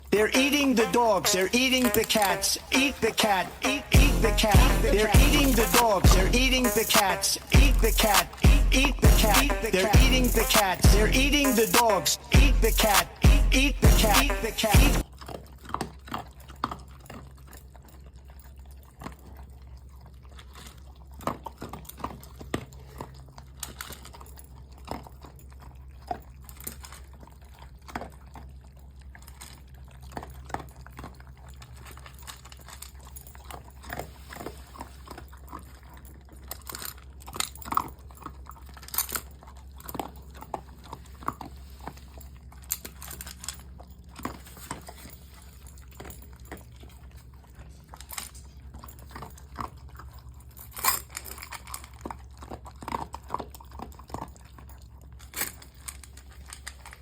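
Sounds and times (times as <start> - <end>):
pet chewing and crunching food: 0.0 - 57.0
steady low hum: 2.3 - 15.0.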